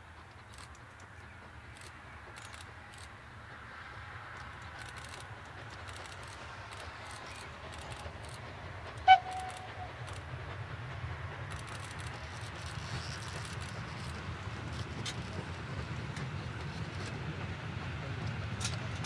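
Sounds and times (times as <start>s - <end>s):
train rumbling: 0.0s - 19.0s
train whistle toot: 9.0s - 10.0s.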